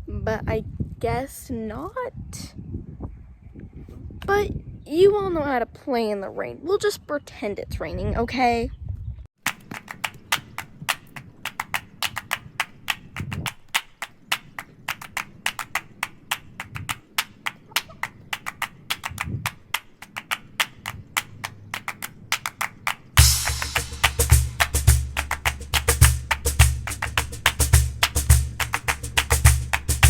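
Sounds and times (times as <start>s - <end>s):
dull low thumps: 23.2s - 30.0s.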